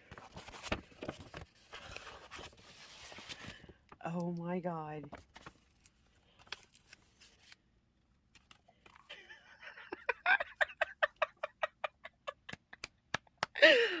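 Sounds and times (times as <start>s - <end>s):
woman laughing breathily: 9.0s - 14.0s.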